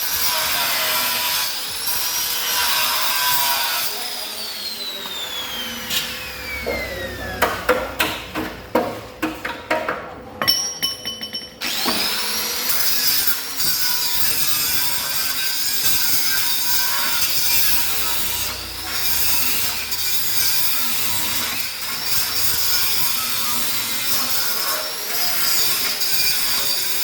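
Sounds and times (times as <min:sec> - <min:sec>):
angle grinder whining: 0:00.0 - 0:08.2, 0:11.6 - 0:27.0
sharp knocks: 0:07.4 - 0:10.1.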